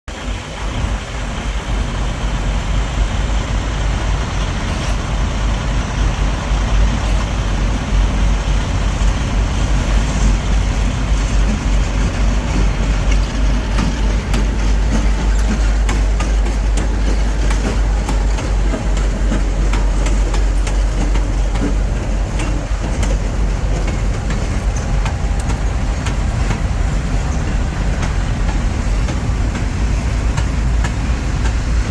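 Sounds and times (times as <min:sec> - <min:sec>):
train cars rumbling past: 0:00.1 - 0:31.9
wheels clicking on rails: 0:00.1 - 0:31.9.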